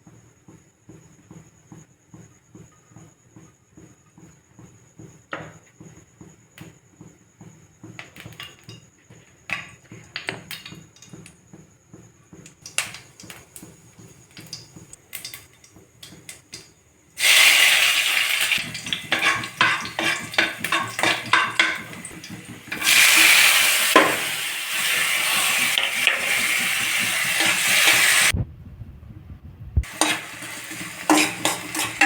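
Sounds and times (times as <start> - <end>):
utensils tapping a pan: 8.0 - 11.4, 12.4 - 28.3, 29.8 - 32.0
food sizzling in hot oil: 12.6 - 28.3, 29.8 - 32.0.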